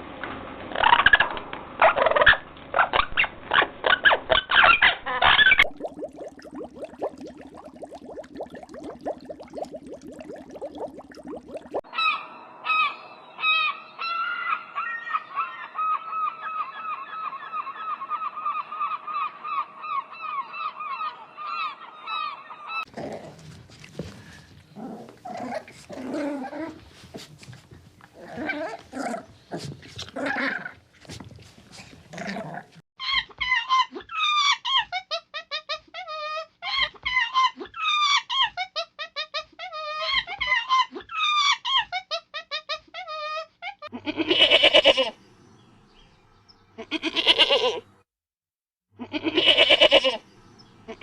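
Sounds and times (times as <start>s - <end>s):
high-pitched animal calls: 33.0s - 45.2s, 46.8s - 47.8s.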